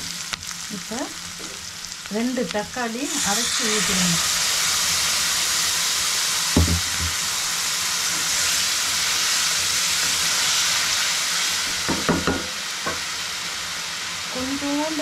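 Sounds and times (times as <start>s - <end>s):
tomato puree sizzling in oil: 0.0s - 15.0s
spatula knocking against pan: 11.9s - 13.0s.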